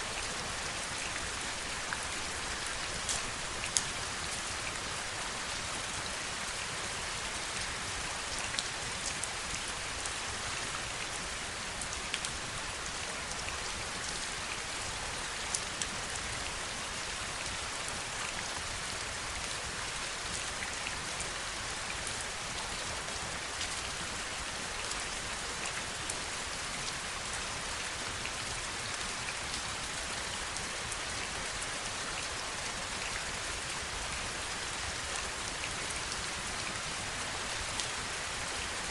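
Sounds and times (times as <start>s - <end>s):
heavy rain falling: 17.4s - 38.9s.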